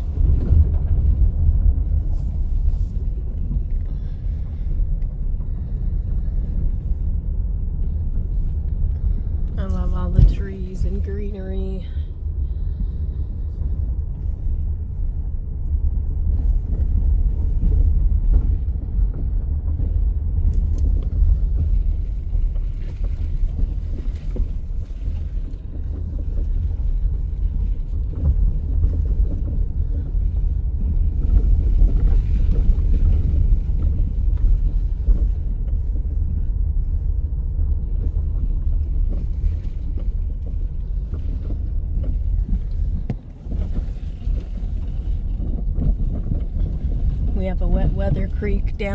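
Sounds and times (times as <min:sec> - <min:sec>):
tyres rumbling on gravel: 0:16.2 - 0:48.9.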